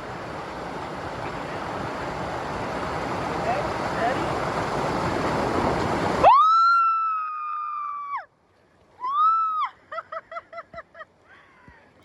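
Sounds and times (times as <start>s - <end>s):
rushing water: 0.0s - 9.9s
person laughing: 9.6s - 11.6s.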